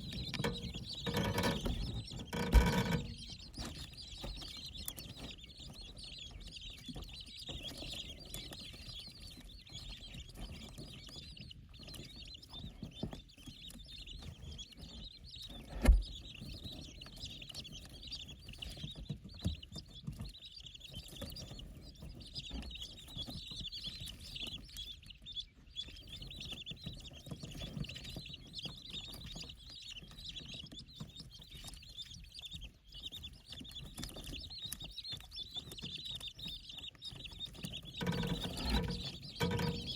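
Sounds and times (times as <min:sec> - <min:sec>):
light tapping and rustling: 0:00.0 - 0:05.2, 0:37.3 - 0:39.9
quail chicks peeping: 0:00.0 - 0:39.9.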